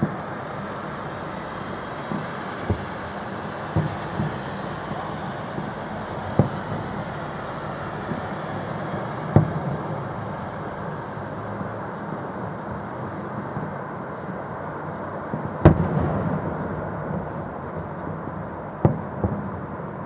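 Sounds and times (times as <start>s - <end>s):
firework shells bursting with bangs: 0.0s - 20.0s.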